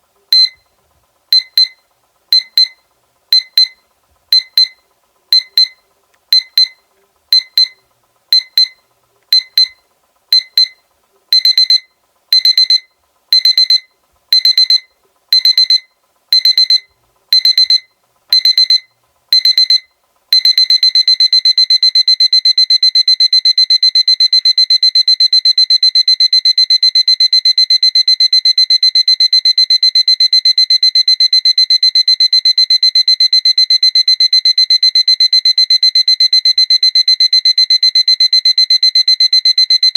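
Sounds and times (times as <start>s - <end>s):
alarm clock beeping: 7.4s - 9.8s, 11.4s - 39.9s.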